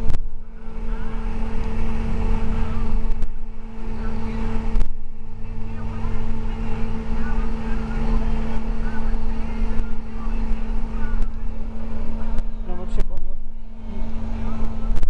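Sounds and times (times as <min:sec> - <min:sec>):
bus engine rumble: 0:00.0 - 0:15.0.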